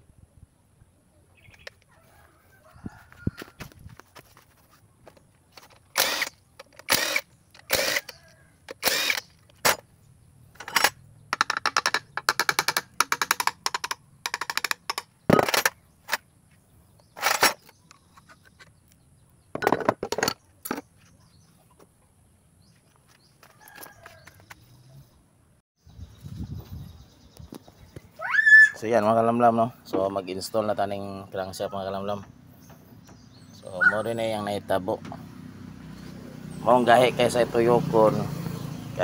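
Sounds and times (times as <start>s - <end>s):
metal tools clanking and scraping: 10.5s - 16.2s, 17.1s - 18.7s, 19.6s - 21.0s.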